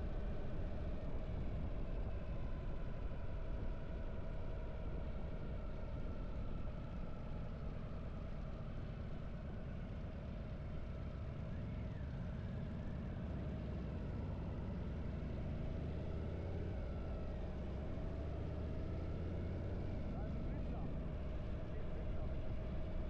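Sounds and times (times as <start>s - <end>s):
motorcycle engine rumble: 7.4s - 23.0s.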